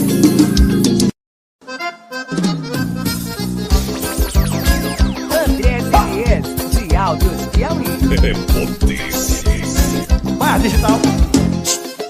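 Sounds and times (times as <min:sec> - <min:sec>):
live band with accordion: 0:01.7 - 0:04.4.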